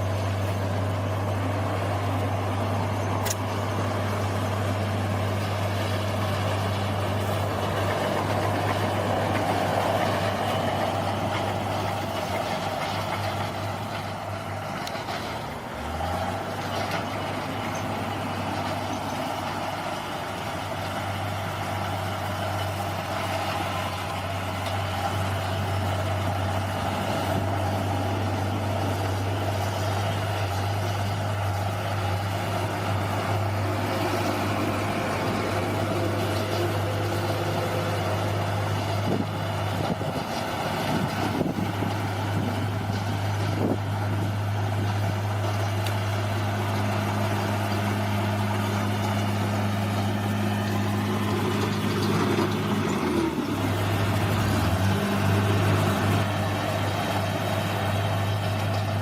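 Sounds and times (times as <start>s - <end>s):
bulldozer diesel engine running: 0.0s - 59.0s
sharp click: 3.2s - 3.5s.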